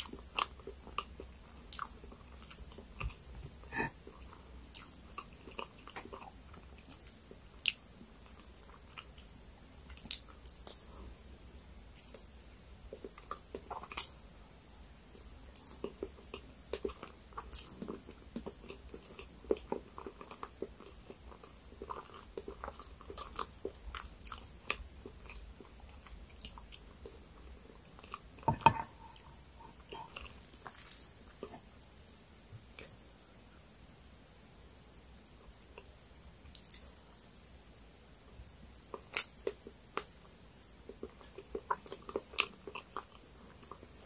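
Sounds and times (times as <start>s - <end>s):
chewing soft cake: 0.0s - 44.0s
wet mouth clicks and smacks: 36.5s - 36.9s.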